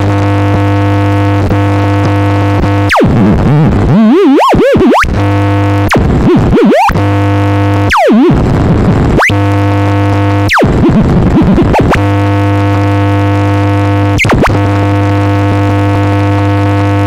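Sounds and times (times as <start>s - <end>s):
buzzing electronic drone: 0.0s - 17.0s
theremin swooping: 2.9s - 5.2s, 5.9s - 7.1s, 7.9s - 8.4s, 9.2s - 9.4s, 10.5s - 12.1s.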